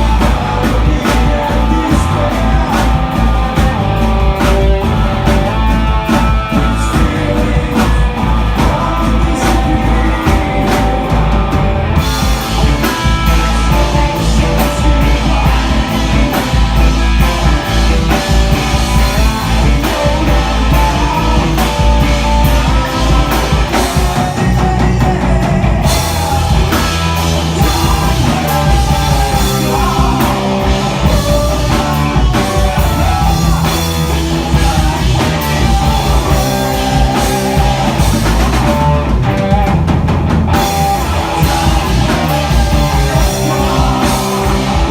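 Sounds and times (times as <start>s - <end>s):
rock band playing live: 0.0s - 44.9s.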